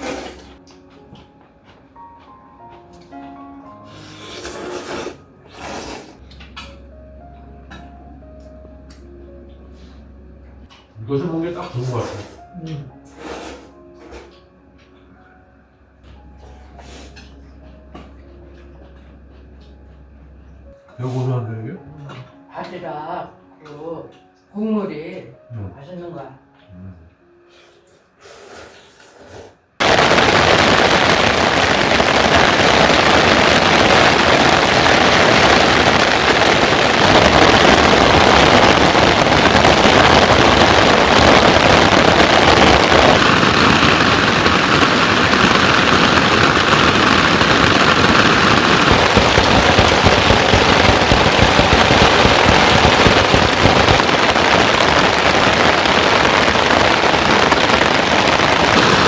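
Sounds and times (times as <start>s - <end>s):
heavy rain on a hard surface: 0.0s - 0.6s, 29.8s - 59.0s.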